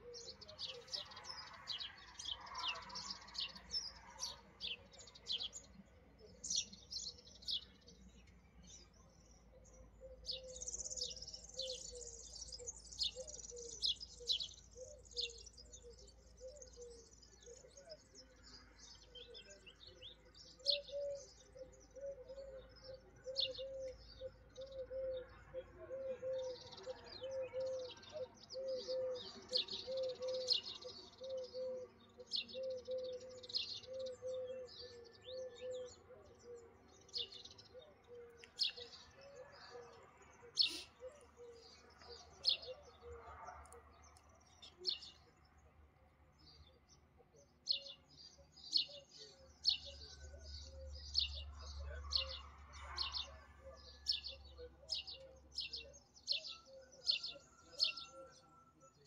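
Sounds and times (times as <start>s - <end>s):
small birds chirping: 0.0s - 59.0s
low repeated bird call: 37.8s - 43.2s.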